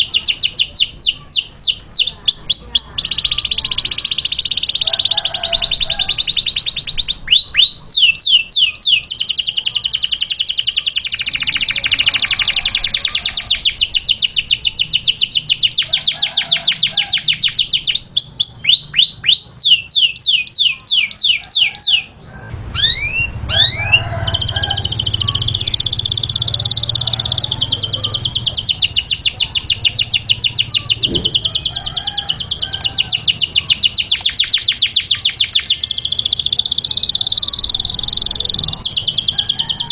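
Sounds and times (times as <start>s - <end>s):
canary trilling: 0.0s - 39.9s
downward-sweeping whistles: 22.3s - 31.1s.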